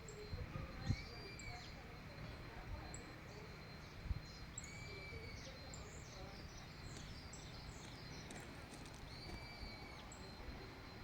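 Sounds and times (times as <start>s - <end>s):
birds chirping: 0.0s - 11.0s
drawn-out whistled bird note: 3.0s - 11.0s.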